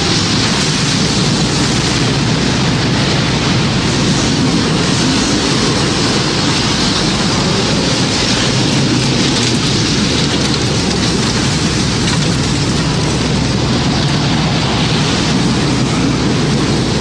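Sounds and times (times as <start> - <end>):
loud rushing wind: 0.0 - 17.0
rain noise: 0.0 - 17.0.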